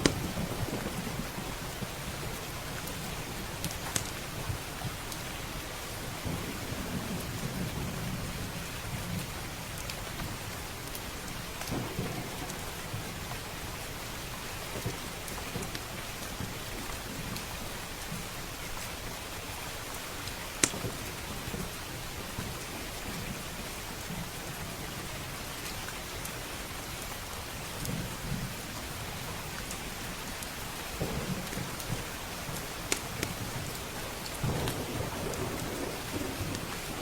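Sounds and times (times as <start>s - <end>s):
wood fire crackling: 0.0s - 7.3s, 9.2s - 23.1s, 27.0s - 37.0s
heavy rain: 0.0s - 37.0s
rolling thunder: 11.7s - 13.1s, 31.0s - 32.6s, 33.2s - 37.0s.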